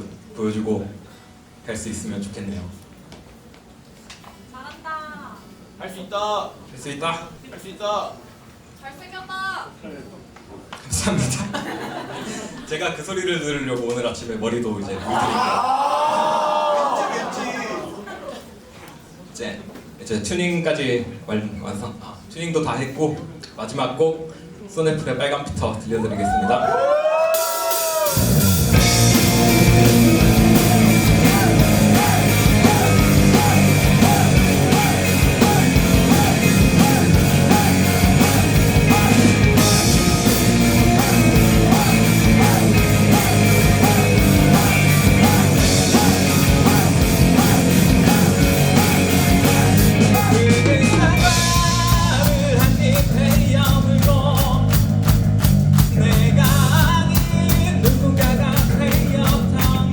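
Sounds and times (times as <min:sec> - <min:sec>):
live rock band playing: 0:27.4 - 0:59.9.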